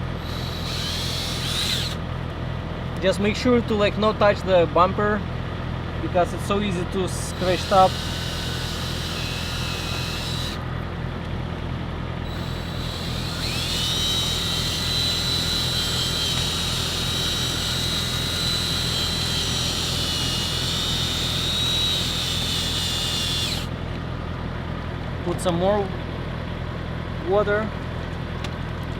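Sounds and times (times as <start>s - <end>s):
drill whine: 0.0s - 2.0s, 7.2s - 10.7s, 12.2s - 23.7s
steady low hum: 0.0s - 28.9s.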